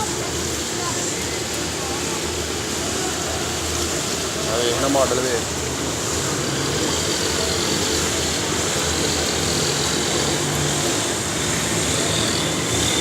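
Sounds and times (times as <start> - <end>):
constant hiss: 0.0 - 13.0
engine running: 0.0 - 13.0.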